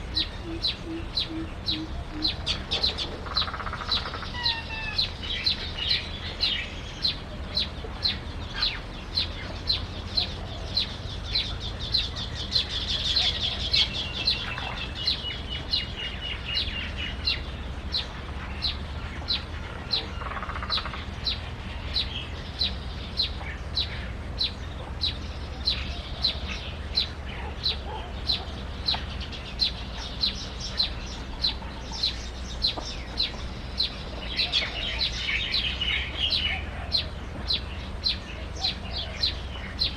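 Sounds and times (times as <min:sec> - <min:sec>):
bird chirping: 0:00.0 - 0:39.9
low steady rumble: 0:00.0 - 0:39.9.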